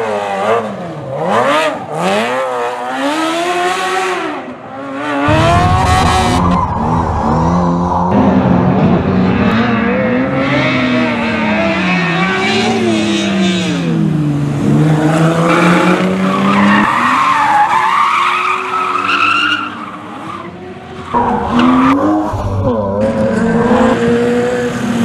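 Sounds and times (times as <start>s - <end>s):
car engine revving: 5.0s - 16.8s, 21.1s - 25.0s.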